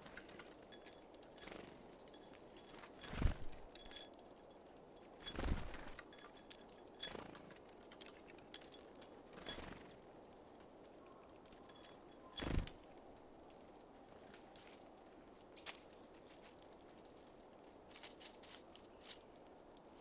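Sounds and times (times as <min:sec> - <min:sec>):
bird wings fluttering: 0:00.0 - 0:04.1, 0:05.0 - 0:09.9, 0:11.7 - 0:12.9
faint high bird chips: 0:00.1 - 0:07.5.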